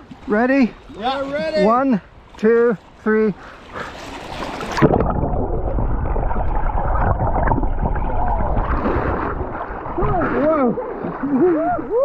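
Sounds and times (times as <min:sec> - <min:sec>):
splashing into water: 0:03.7 - 0:12.0
muffled underwater bubbling: 0:04.8 - 0:12.0.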